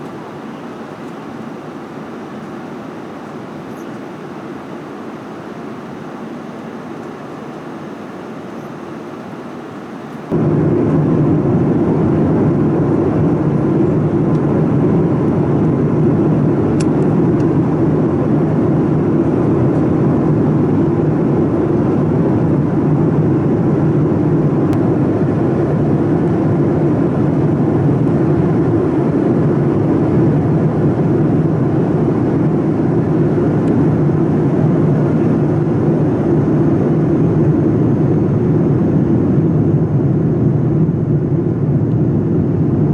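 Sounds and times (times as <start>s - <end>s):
jet engine cabin noise: 0.0s - 10.8s.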